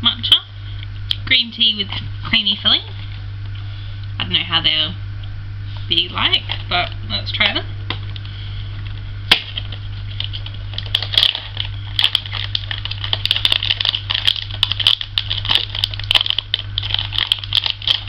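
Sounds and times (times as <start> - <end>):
steady low hum: 0.0 - 18.0
plastic packaging crinkling: 8.8 - 18.0.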